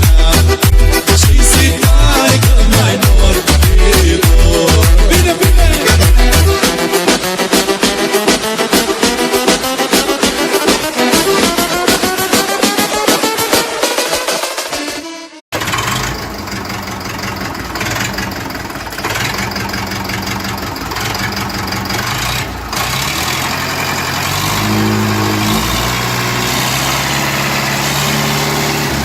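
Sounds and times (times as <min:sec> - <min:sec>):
tractor diesel engine running: 0:00.0 - 0:07.0, 0:15.5 - 0:29.0.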